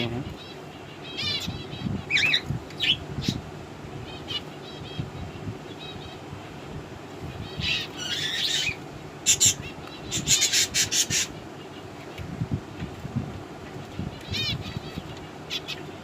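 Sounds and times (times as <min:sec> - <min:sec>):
budgerigars chattering and chirping: 0:00.0 - 0:03.4, 0:07.4 - 0:11.8, 0:14.2 - 0:16.0.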